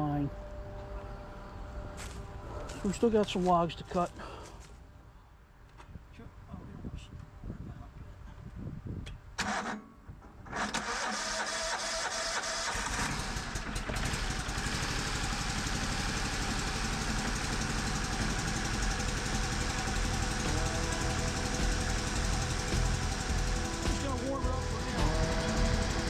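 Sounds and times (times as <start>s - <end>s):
gasoline engine starting and running: 9.4s - 26.0s.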